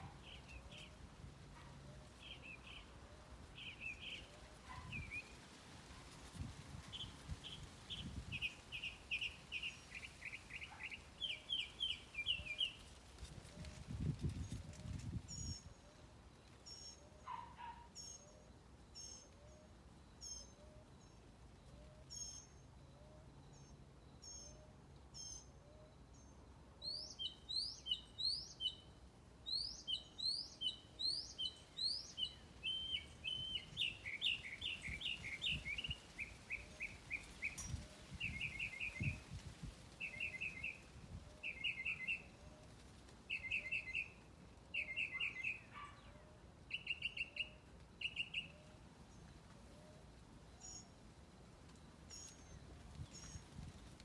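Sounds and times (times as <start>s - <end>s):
birds singing: 0.0s - 1.0s, 1.6s - 5.6s, 6.9s - 13.0s, 25.2s - 28.9s, 29.5s - 49.3s.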